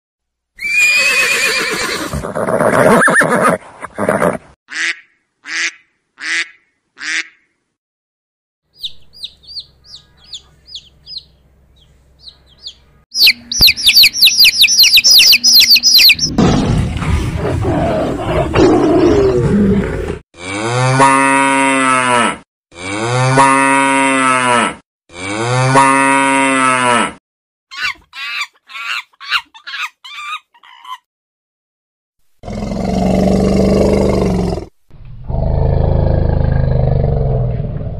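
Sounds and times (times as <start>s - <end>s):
baby chicks peeping: 8.8s - 16.3s.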